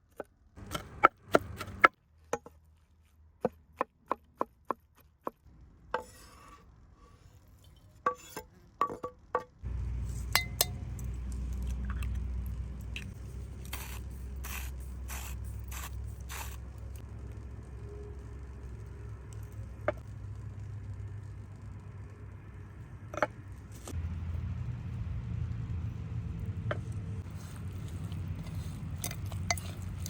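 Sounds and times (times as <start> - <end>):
steady low rumble: 9.6 - 30.0
kitchenware clinking and scraping: 28.8 - 30.0.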